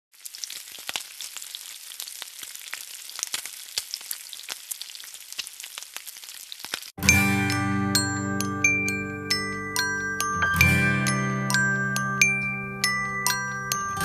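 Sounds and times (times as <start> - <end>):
food sizzling with crackles: 0.1 - 7.0.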